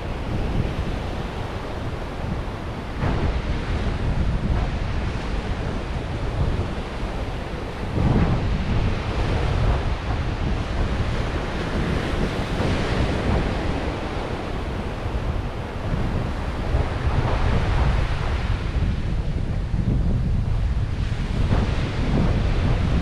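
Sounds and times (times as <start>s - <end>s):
surf washing onto beach: 0.0s - 23.0s
wind buffeting microphone: 0.0s - 23.0s.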